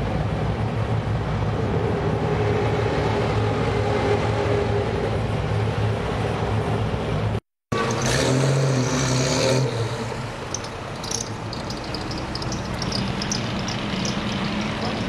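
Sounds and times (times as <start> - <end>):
street traffic: 0.0 - 15.0
car engine running: 10.2 - 15.0.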